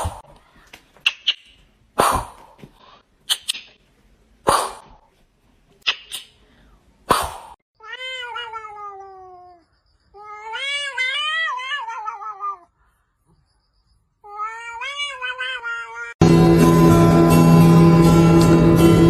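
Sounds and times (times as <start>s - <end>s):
cat meowing: 7.8s - 9.6s, 10.2s - 12.7s, 14.2s - 16.2s.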